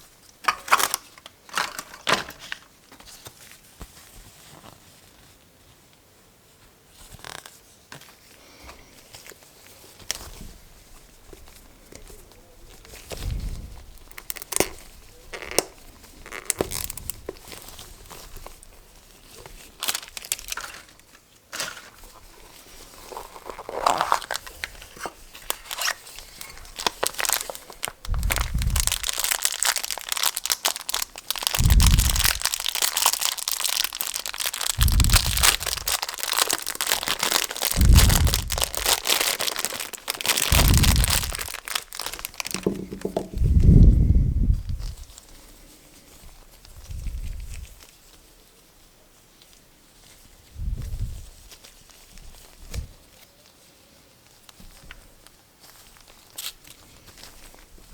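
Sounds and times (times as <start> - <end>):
plastic packaging crinkling and tearing: 0.0 - 5.1, 9.0 - 43.8, 49.2 - 57.9
dull thump: 42.5 - 43.6.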